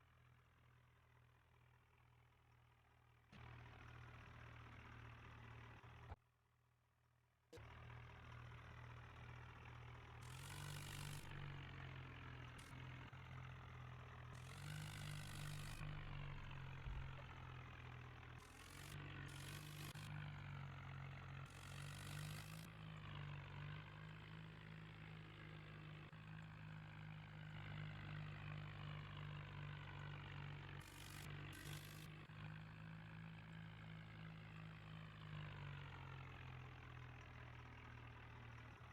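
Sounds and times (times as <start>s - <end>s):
tractor diesel engine revving: 14.4s - 17.6s.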